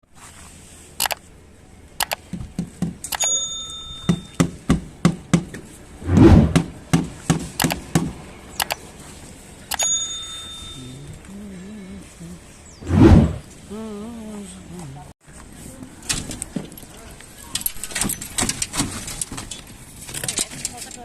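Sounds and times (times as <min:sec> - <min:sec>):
sharp knocks and clicks: 0:01.0 - 0:01.2, 0:02.0 - 0:03.4, 0:06.5 - 0:08.8
metallic rings: 0:03.2 - 0:04.4, 0:09.7 - 0:11.0.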